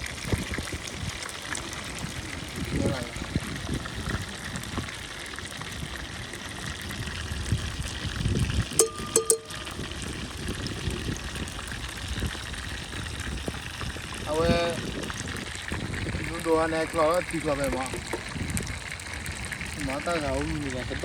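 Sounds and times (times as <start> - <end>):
water running: 8.6 - 10.7, 13.9 - 18.6.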